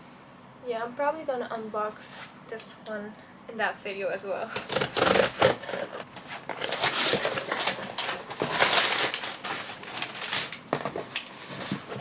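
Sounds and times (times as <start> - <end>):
packaging rustling and crinkling: 4.5 - 12.0.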